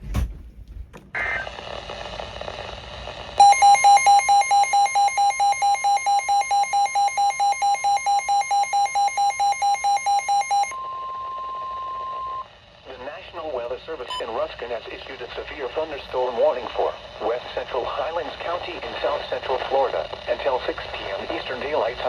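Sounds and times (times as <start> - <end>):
radio hiss: 1.1 - 3.4, 12.8 - 22.0
rapid alarm beeps: 3.4 - 12.5, 14.1 - 14.3
steady warning alarm tone: 3.4 - 12.7.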